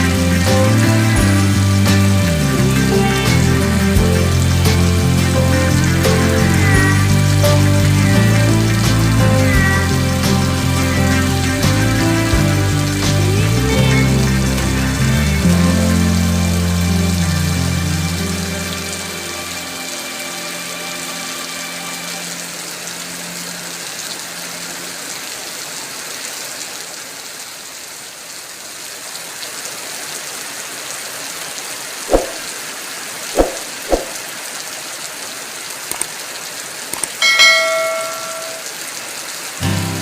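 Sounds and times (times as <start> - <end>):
heavy rain: 0.0 - 40.0
sharp knocks: 32.1 - 32.4, 33.4 - 34.2
short ringing tone: 37.2 - 38.7.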